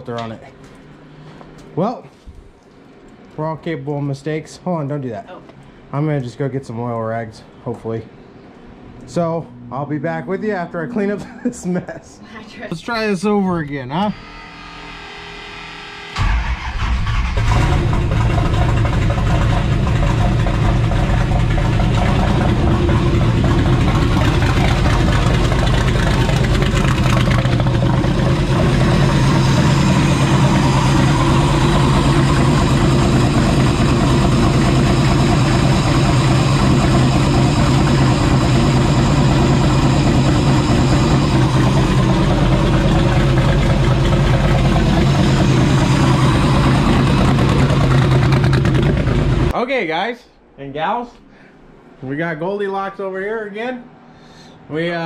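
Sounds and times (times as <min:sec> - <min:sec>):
car engine loud idle: 0:16.2 - 0:49.5.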